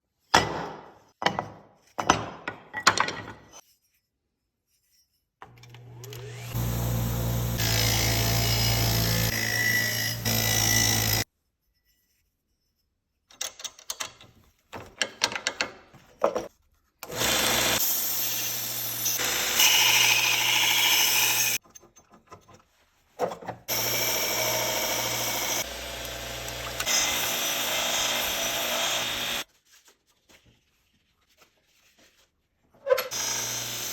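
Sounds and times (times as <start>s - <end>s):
power tool running: 5.6s - 11.2s, 17.0s - 21.6s, 23.7s - 29.4s, 33.1s - 33.9s.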